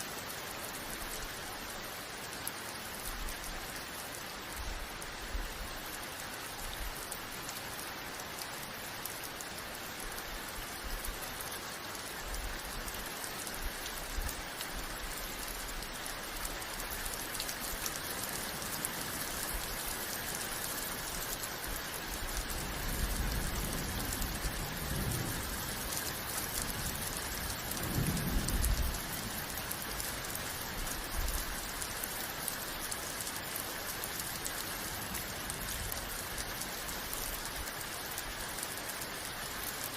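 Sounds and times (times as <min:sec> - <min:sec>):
steady rain hiss: 0:00.0 - 0:39.9
thunder rumbles: 0:22.7 - 0:30.0.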